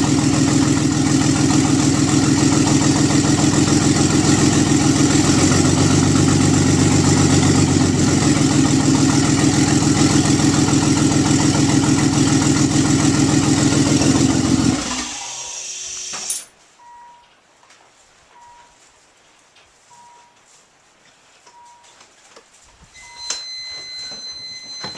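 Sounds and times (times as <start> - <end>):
car engine idling: 0.0 - 15.1.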